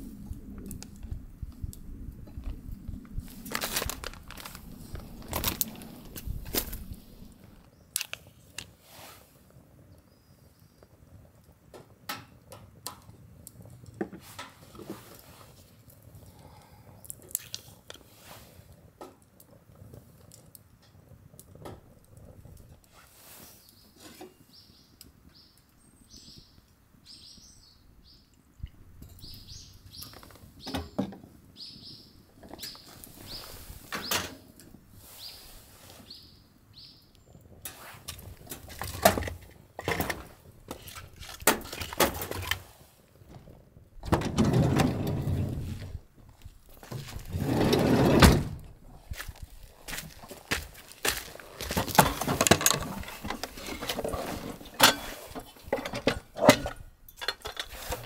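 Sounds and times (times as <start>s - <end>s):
rustling scuffing noise: 45.6s - 47.6s, 49.0s - 52.2s.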